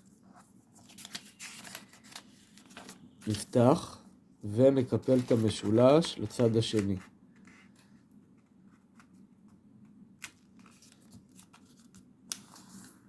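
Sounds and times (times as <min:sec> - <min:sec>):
paper rustling: 0:00.0 - 0:03.6, 0:04.5 - 0:08.0, 0:10.2 - 0:13.0.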